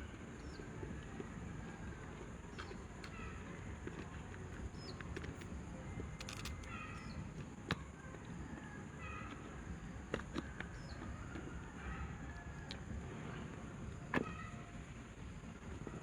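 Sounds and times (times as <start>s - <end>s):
steady low rumble: 0.0s - 16.0s
sharp clicks: 6.2s - 6.8s.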